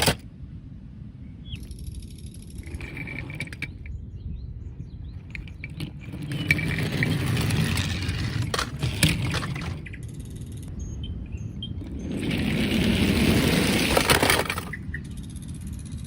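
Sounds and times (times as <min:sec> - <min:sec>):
plastic toy clicks and rattles: 0:00.0 - 0:00.2, 0:02.5 - 0:03.9, 0:05.2 - 0:10.6, 0:11.8 - 0:16.0
toy rolling and whirring: 0:00.0 - 0:00.2, 0:01.6 - 0:03.9, 0:05.2 - 0:10.7, 0:11.7 - 0:16.0.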